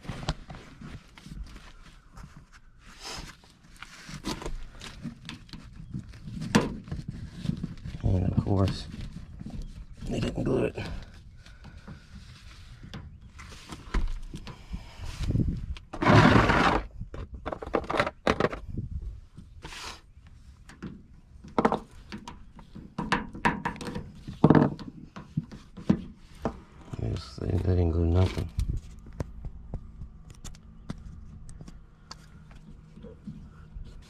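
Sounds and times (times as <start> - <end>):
plastic scraping rush: 15.9 - 16.9
plastic pipe fittings knocking: 20.7 - 26.6.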